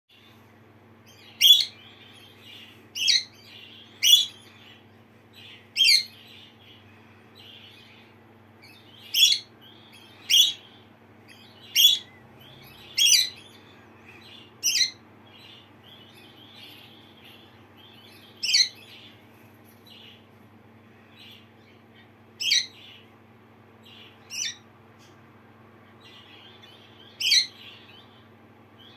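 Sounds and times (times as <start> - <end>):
soft parakeet twittering: 1.0 - 19.1, 20.9 - 23.1, 23.7 - 25.2, 25.9 - 28.9
parakeet chirps: 1.1 - 6.8, 7.4 - 19.1, 21.1 - 23.1, 23.8 - 25.1, 25.9 - 28.9.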